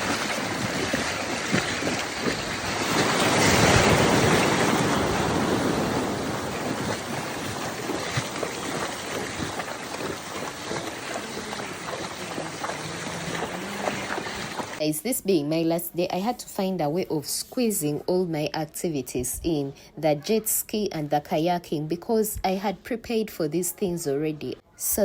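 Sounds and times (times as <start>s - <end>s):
sea surf washing on beach: 0.0s - 14.8s
wind on microphone: 0.0s - 14.8s.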